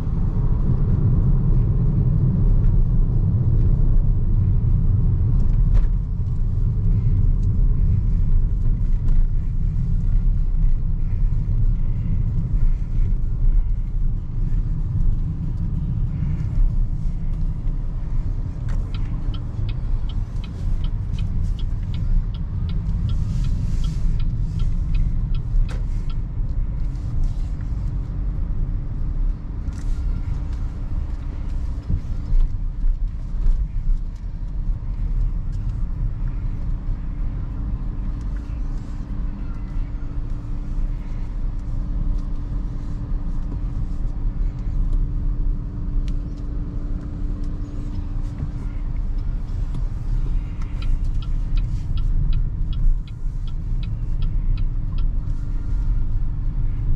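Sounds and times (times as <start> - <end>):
tyre and road rumble: 0.0 - 56.9
faint light ticks: 11.6 - 28.0, 29.3 - 36.7, 46.0 - 56.2.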